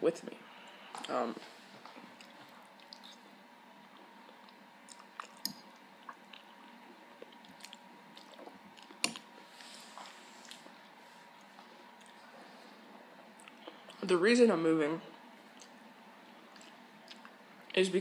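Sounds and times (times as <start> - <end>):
person chewing noodles: 1.8 - 12.4, 13.4 - 14.0, 15.4 - 17.8.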